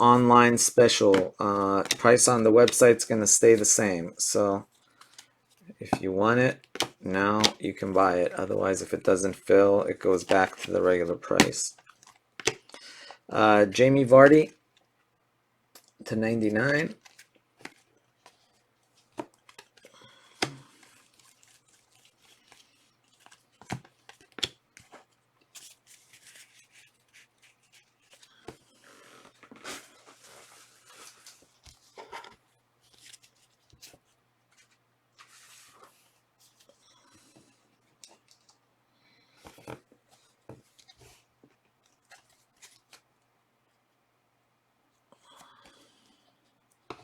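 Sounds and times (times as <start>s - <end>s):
trading cards sliding and rustling: 20.4s - 36.8s.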